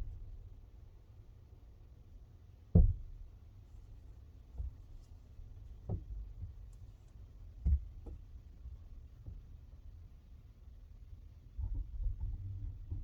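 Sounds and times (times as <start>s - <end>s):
dull thumps and knocks: 2.8s - 3.0s, 4.5s - 5.0s.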